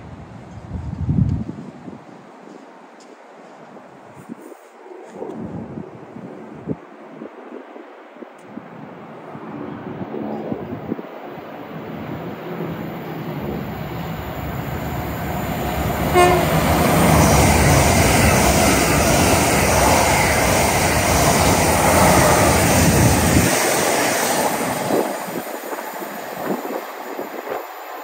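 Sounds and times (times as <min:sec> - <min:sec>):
train wheels rolling on rail: 0:11.4 - 0:28.0
train horn: 0:16.0 - 0:17.3.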